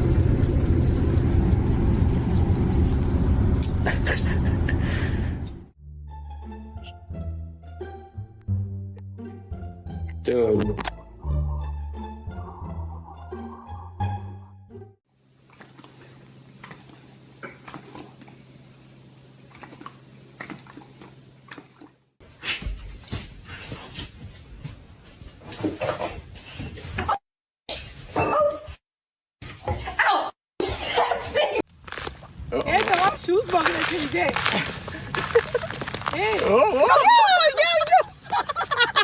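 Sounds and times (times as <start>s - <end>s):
loud low rumble: 0.0s - 5.6s
low hum: 0.0s - 5.7s.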